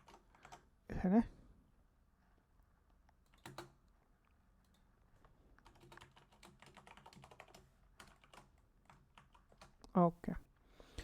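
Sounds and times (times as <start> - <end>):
faint keyboard typing: 0.0 - 0.8, 2.9 - 10.0.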